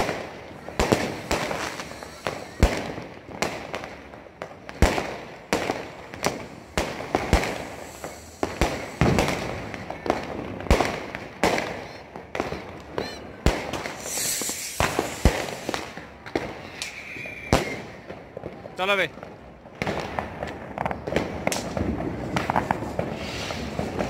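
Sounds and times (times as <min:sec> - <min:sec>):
firework whistle: 0:00.0 - 0:03.0, 0:05.7 - 0:10.2, 0:11.5 - 0:18.1, 0:22.4 - 0:24.0
crackling hiss: 0:00.0 - 0:18.0, 0:21.5 - 0:24.0
fireworks banging: 0:00.0 - 0:24.0.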